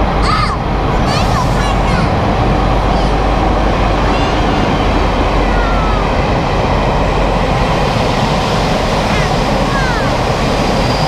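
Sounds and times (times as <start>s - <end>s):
train wheels rumbling on rails: 0.0s - 11.0s
faint high wheel squeal: 10.7s - 11.0s.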